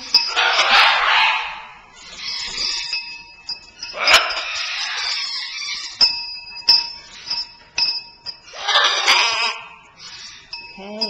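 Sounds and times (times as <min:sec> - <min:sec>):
small bell clinking: 0:00.0 - 0:00.7, 0:02.0 - 0:09.1, 0:09.8 - 0:11.0.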